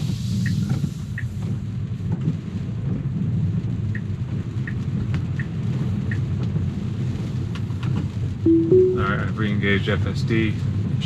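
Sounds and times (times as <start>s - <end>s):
road and rain noise in car: 0.0s - 11.0s
turn signal ticking: 3.8s - 6.4s.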